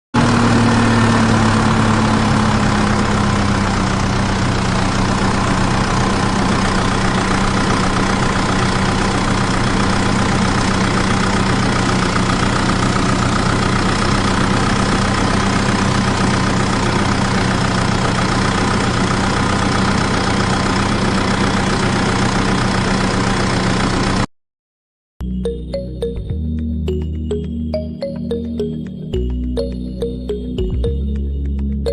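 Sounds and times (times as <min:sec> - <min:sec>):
engine idling: 0:00.2 - 0:24.3.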